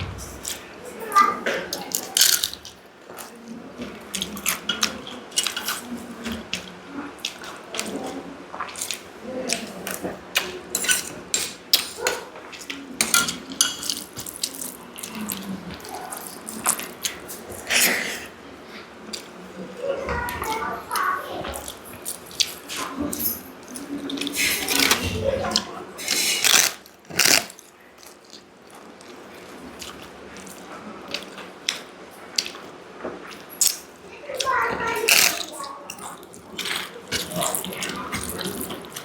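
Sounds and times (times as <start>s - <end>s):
wet chewing and lip smacking: 26.5s - 33.8s.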